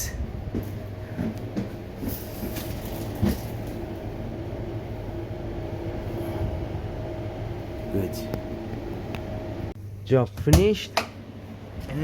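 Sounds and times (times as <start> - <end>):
freezer fans humming: 0.0 - 12.0.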